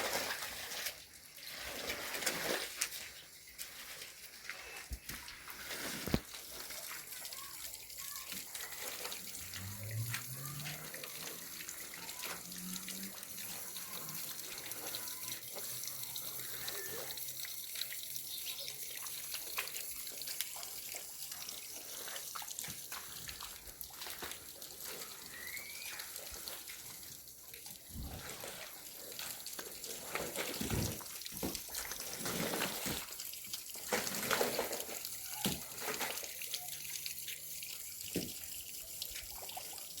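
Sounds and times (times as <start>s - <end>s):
water running and splashing: 0.0s - 40.0s.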